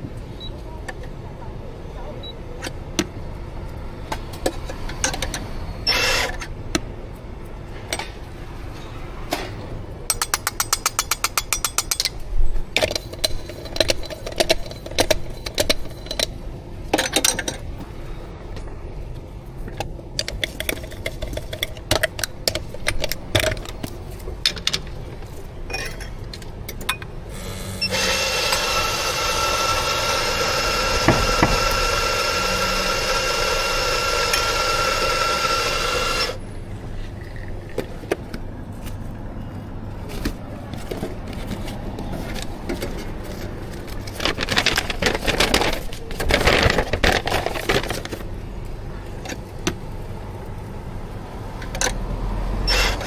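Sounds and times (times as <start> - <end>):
cups and metal parts clinking: 10.1 - 17.8, 19.7 - 27.2
coffee machine hissing: 27.2 - 36.4.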